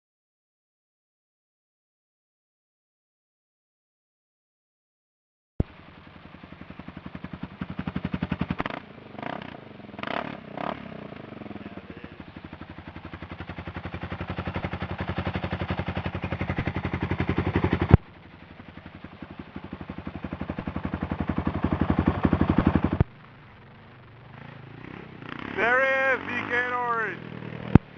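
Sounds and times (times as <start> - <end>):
motorcycle engine revving: 5.7 - 27.9.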